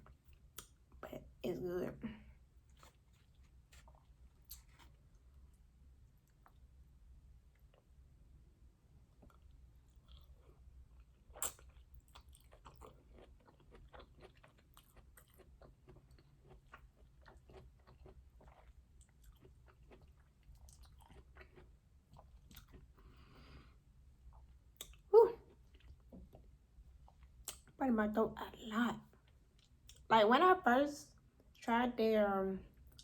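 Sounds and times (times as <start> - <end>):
person chewing food: 2.5 - 8.0, 9.1 - 27.8.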